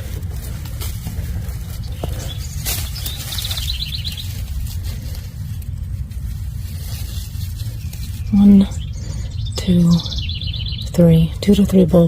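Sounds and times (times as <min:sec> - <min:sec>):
scrapes or rustles: 0:00.0 - 0:08.9
low rumble: 0:00.0 - 0:12.0
small bird chirping trill: 0:01.4 - 0:05.2, 0:06.8 - 0:12.0.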